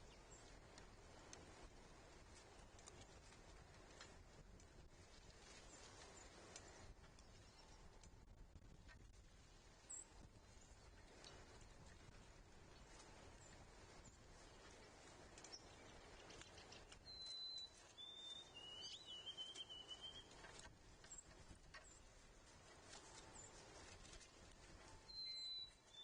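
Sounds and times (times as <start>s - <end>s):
faint ticks: 0.1s - 9.2s, 10.9s - 18.0s
songbird whistling: 16.8s - 20.5s, 25.1s - 26.0s.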